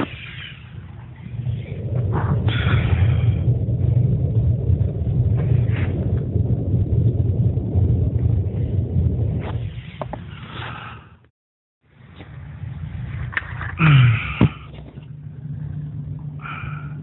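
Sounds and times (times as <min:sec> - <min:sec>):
hissing flame flares: 0:00.0 - 0:11.2
chimney fire rumbling: 0:00.0 - 0:11.3, 0:12.0 - 0:17.0.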